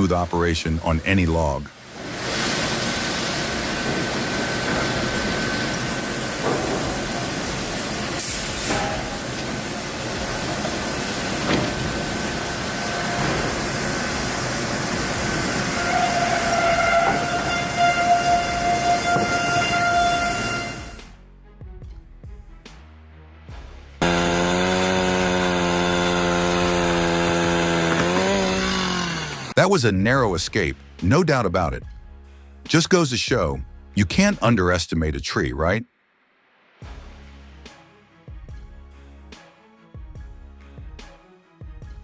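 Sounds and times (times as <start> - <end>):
heavy machinery hissing and whining: 1.9 - 21.1, 24.0 - 29.6.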